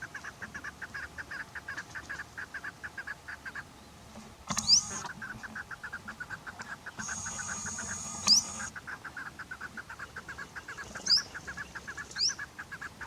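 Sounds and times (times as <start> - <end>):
partridge chucking notes: 4.5 - 5.1, 7.0 - 8.7.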